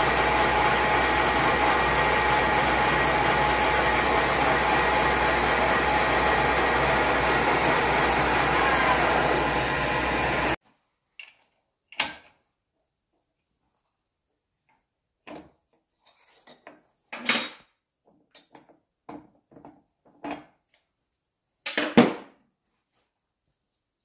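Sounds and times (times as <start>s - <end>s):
lathe machining: 0.0s - 10.6s
metal tools clinking: 0.1s - 2.2s.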